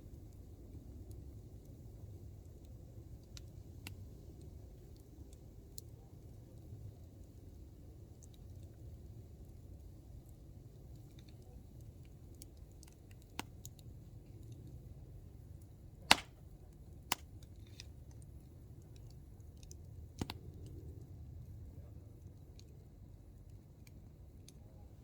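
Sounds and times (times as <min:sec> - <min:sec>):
burning wood popping and snapping: 0:10.2 - 0:14.9, 0:15.5 - 0:21.5
campfire flame rushing: 0:11.9 - 0:24.2.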